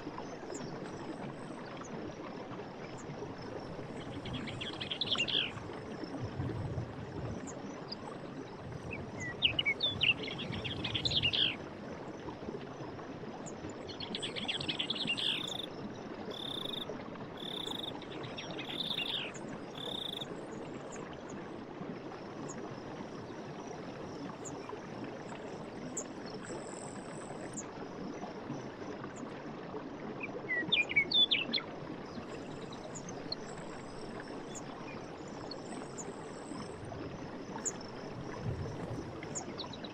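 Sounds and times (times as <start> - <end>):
stream water running: 0.0 - 39.9
birds chirping: 18.6 - 20.2.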